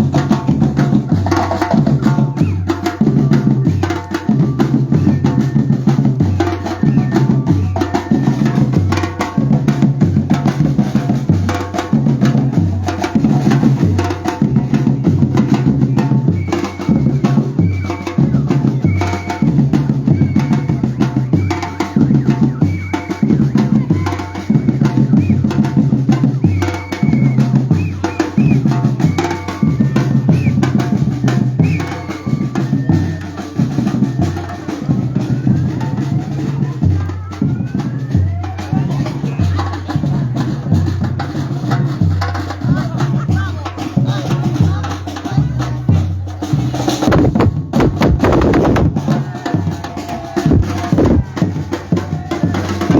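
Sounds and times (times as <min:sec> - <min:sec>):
hand percussion: 0:00.0 - 0:52.9
snare drums: 0:00.0 - 0:52.9
deep bass drums: 0:44.0 - 0:52.9.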